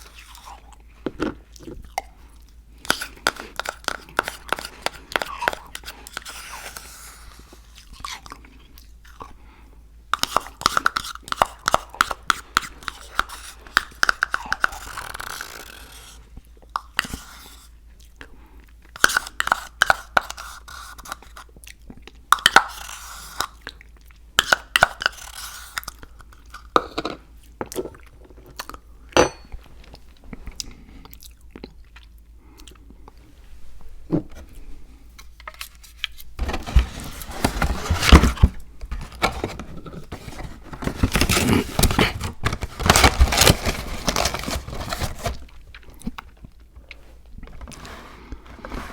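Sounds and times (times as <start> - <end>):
person chewing crunchy food: 0.0 - 9.4, 29.8 - 33.4.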